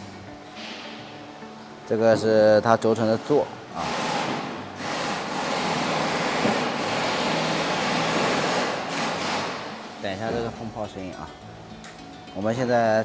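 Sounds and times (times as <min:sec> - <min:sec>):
pneumatic impact wrench hissing: 0:03.8 - 0:10.4.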